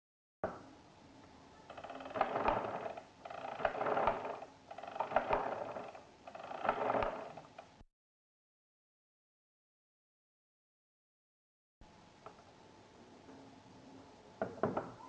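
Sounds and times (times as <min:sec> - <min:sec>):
mechanical calculator whirring and clicking: 0:01.7 - 0:07.8.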